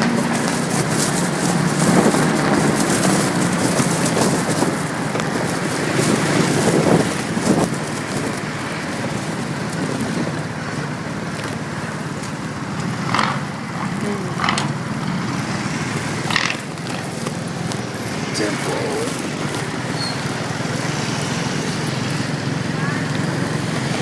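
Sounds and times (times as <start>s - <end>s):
wind rush over microphone: 0.0s - 10.6s
motorcycle engine and road noise: 0.0s - 24.0s.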